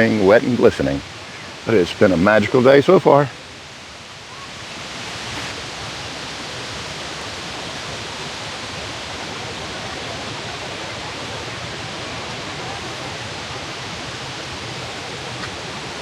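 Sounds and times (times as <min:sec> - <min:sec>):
water tumbling over rocks: 0:00.0 - 0:01.0.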